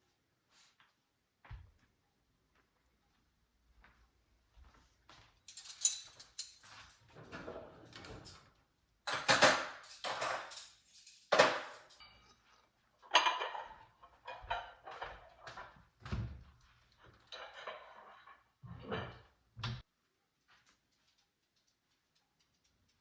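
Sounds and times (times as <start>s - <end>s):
dishes and utensils clattering: 5.5s - 8.4s, 9.1s - 15.8s, 17.1s - 19.3s.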